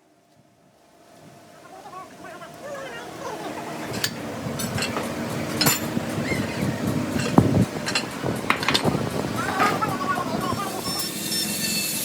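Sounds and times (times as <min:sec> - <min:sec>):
low rumble: 0:03.4 - 0:11.0
metal clinks and knocks: 0:04.0 - 0:06.0.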